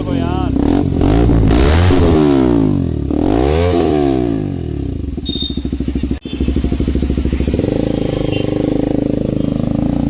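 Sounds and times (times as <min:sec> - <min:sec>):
motorcycle engine blipping and idling: 0:04.9 - 0:10.0.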